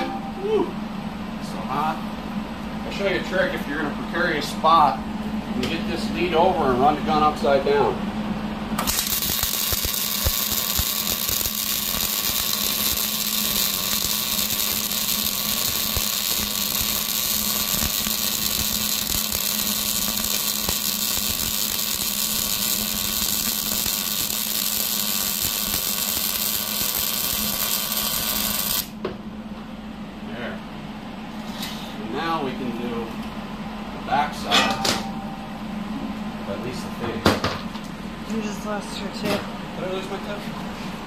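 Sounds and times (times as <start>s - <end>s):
welder arc crackling and hissing: 8.8s - 29.0s.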